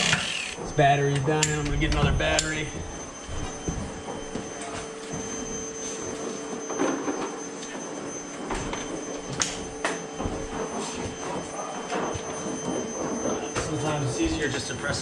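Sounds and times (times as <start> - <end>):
steady high-pitched hum: 0.0 - 15.0
tools knocking and clicking: 1.1 - 2.6.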